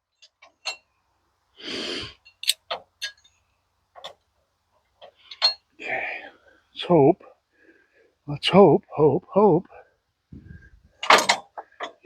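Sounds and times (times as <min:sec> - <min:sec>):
breathy exhale: 0:01.6 - 0:02.2
metal parts clicking and knocking: 0:02.3 - 0:03.3, 0:11.0 - 0:12.0.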